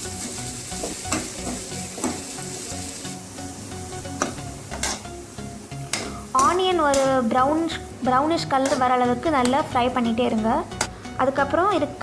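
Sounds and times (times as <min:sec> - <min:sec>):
onions sizzling in oil: 0:00.0 - 0:11.2
spatula scraping a pan: 0:04.7 - 0:05.1.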